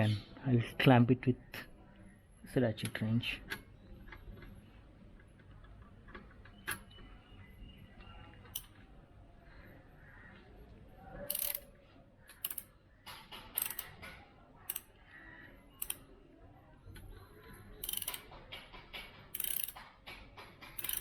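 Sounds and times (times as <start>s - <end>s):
ratchet wrench clicking: 11.3s - 11.7s, 12.4s - 12.7s, 13.4s - 14.0s, 14.7s - 14.9s, 15.8s - 16.0s, 17.8s - 18.3s, 19.0s - 19.9s, 20.6s - 21.0s.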